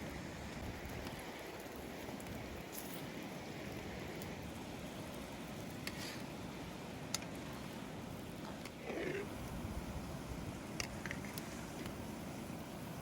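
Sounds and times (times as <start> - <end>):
wood fire crackles: 0.0 - 13.0
food sizzling: 8.8 - 9.3.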